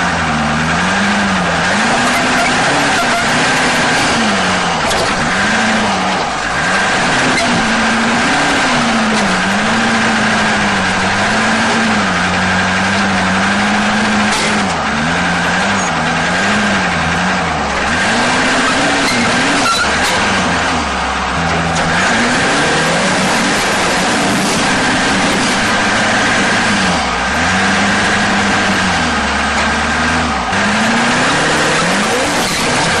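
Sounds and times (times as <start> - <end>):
truck engine revving: 0.0 - 33.0.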